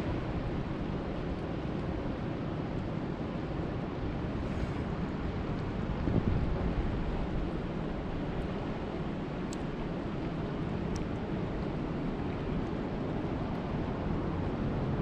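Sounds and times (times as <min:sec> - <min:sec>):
faint sharp ticks: 0:09.5 - 0:09.7.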